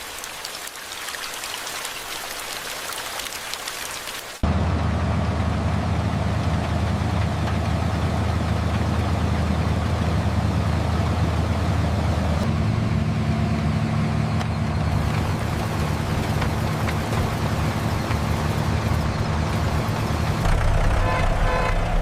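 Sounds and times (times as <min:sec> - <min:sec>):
tractor engine idling: 0:04.4 - 0:22.0.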